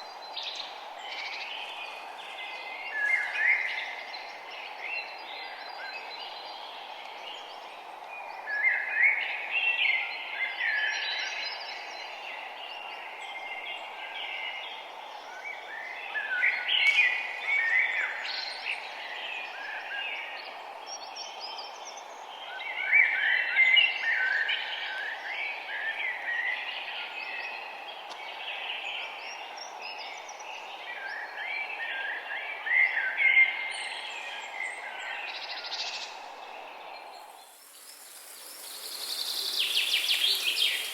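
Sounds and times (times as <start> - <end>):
songbirds chirping: 0.0 - 8.5, 9.2 - 40.9
steady background hiss: 32.5 - 40.9.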